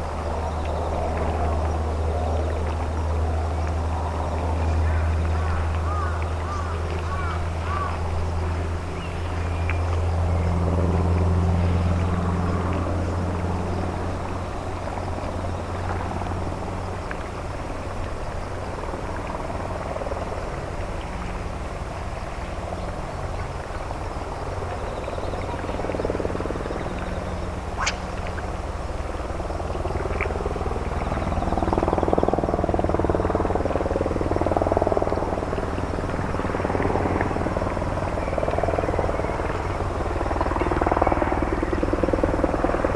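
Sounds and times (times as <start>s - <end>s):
ship diesel engine drone: 0.0s - 42.9s
sharp click: 27.8s - 28.5s.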